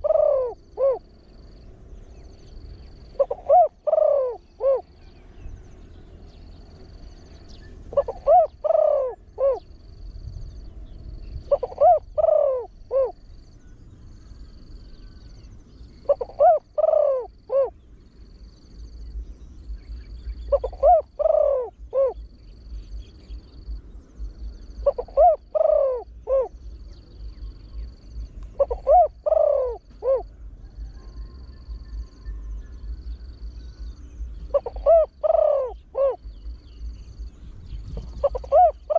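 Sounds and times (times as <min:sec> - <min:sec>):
dove cooing: 0:00.0 - 0:05.0, 0:07.9 - 0:09.9, 0:11.4 - 0:13.4, 0:15.9 - 0:17.8, 0:19.8 - 0:38.9.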